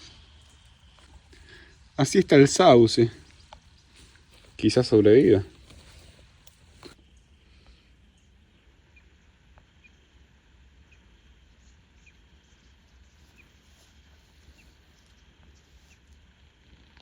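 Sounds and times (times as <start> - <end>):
small bird chirping: 10.8 - 17.0.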